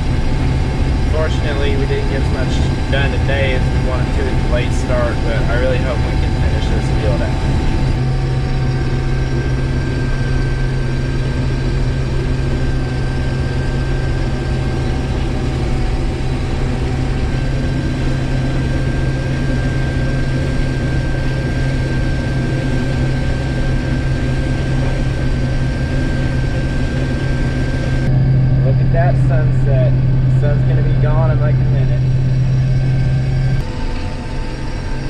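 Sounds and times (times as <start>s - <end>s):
combine engine drone: 0.0s - 35.0s
thin high whine: 0.0s - 35.0s.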